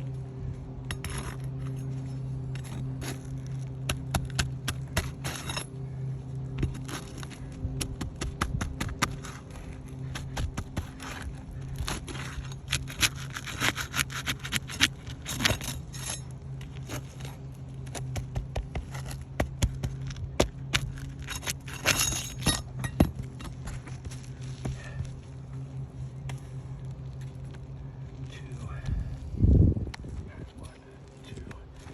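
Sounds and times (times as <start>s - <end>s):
low hum: 0.0s - 31.9s
hand tools scraping roofing shingle: 0.9s - 5.7s, 6.6s - 24.9s.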